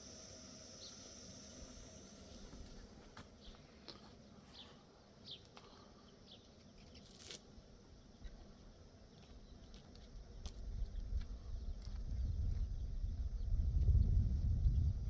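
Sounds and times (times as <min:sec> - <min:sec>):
low rumble: 0:12.1 - 0:15.0.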